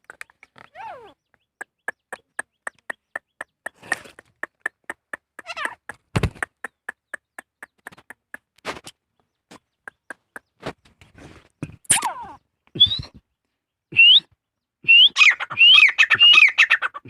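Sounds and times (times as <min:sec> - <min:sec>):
bird clucking notes: 0:00.0 - 0:08.5, 0:09.5 - 0:10.8, 0:14.9 - 0:17.0.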